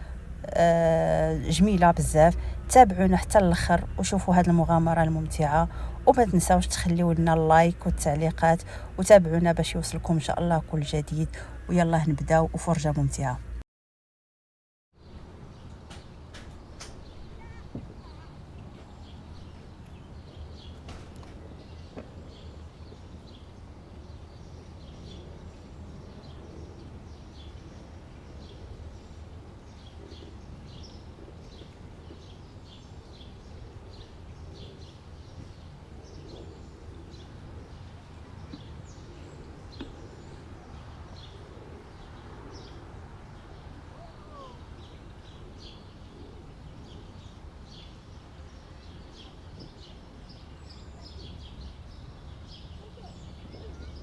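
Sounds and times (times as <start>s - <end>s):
low outdoor rumble: 0.0s - 13.6s
small birds chirping: 0.0s - 13.6s, 15.6s - 20.8s, 21.4s - 54.0s.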